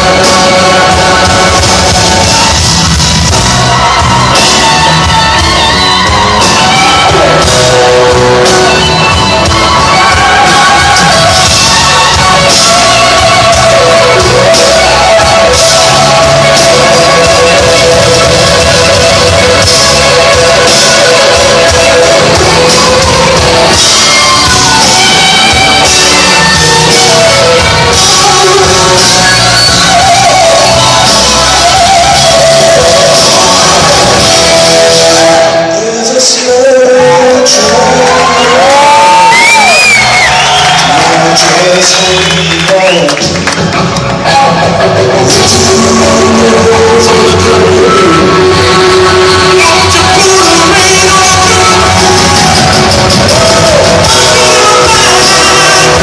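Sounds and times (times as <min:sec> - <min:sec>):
electric guitar bending notes: 0:00.0 - 0:35.9, 0:43.4 - 0:56.0
blues-rock band playing: 0:00.0 - 0:56.0.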